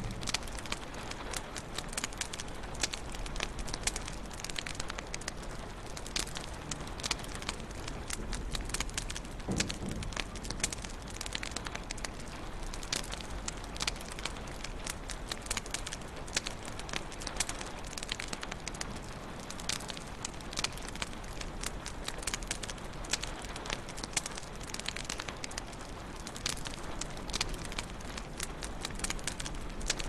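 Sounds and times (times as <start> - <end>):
low rumble: 0.0 - 1.4, 8.1 - 12.3
wood fire crackling: 0.0 - 30.0.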